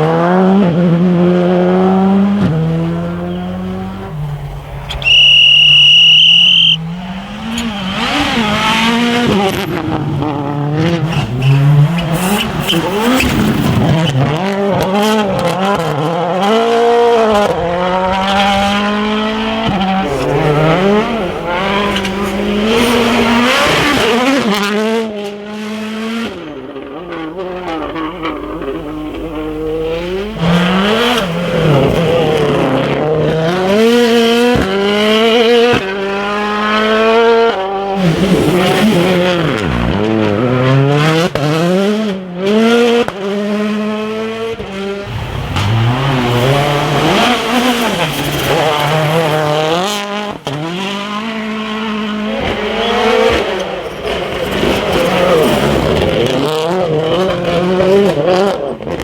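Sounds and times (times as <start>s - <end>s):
rally car engine revving hard: 0.0s - 59.0s.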